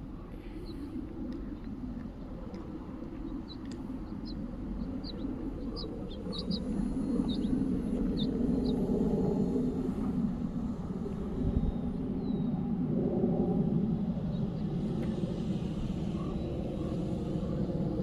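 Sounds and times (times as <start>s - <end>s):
steady low rumble: 0.0s - 18.0s
small bird chirping: 3.3s - 8.8s.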